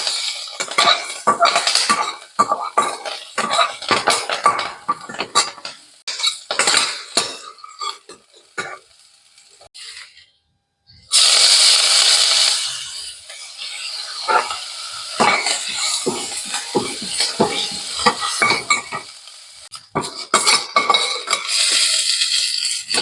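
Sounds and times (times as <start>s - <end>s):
metal spoon scraping a pan: 0.0s - 8.3s, 12.6s - 19.1s, 20.0s - 23.0s.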